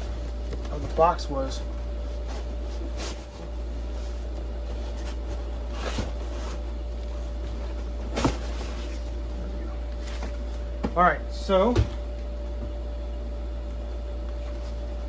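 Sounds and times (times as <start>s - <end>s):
low electrical hum: 0.0s - 15.0s
cardboard packaging knocks and rustles: 3.6s - 9.2s.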